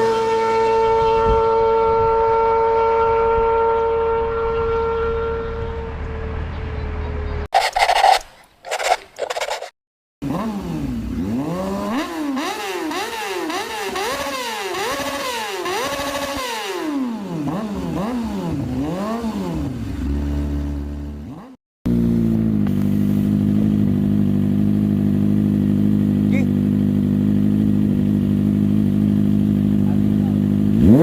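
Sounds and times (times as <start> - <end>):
motorcycle engine revving and idling: 8.8 - 31.0.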